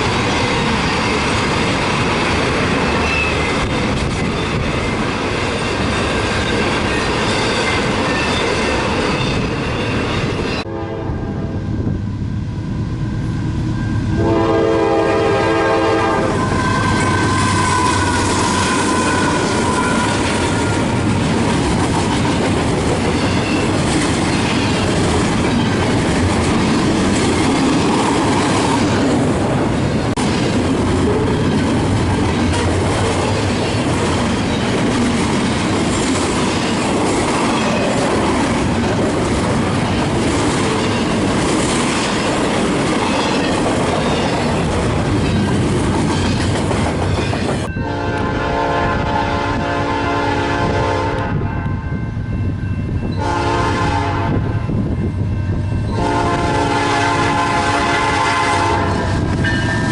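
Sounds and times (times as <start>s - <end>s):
train wheels rumbling and clacking: 0.0s - 10.7s, 13.2s - 59.9s
locomotive air horn: 10.6s - 11.5s, 14.1s - 21.0s, 47.8s - 51.5s, 53.2s - 54.5s, 55.9s - 59.1s.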